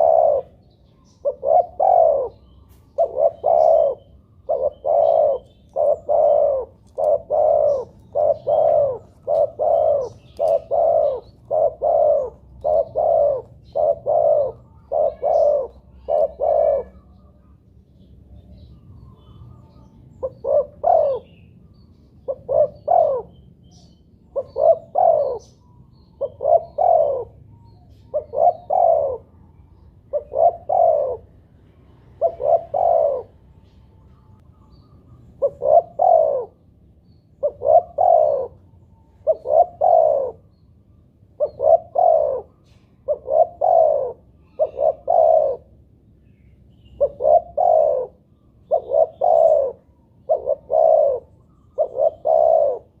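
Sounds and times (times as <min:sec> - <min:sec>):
dove cooing: 0:00.0 - 0:17.6, 0:18.6 - 0:21.6, 0:22.2 - 0:40.6, 0:41.2 - 0:46.0, 0:46.8 - 0:53.0.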